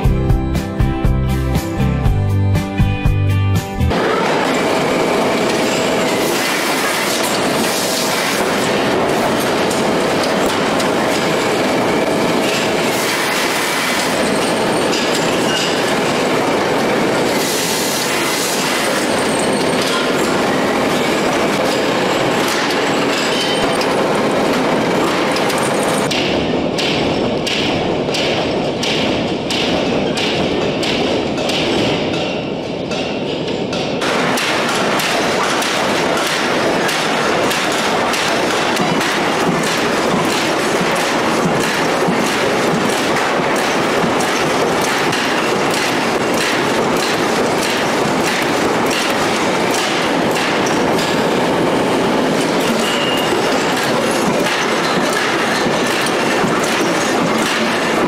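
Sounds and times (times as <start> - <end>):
workshop noise: 0.0 - 58.0
forging press striking: 18.4 - 58.0.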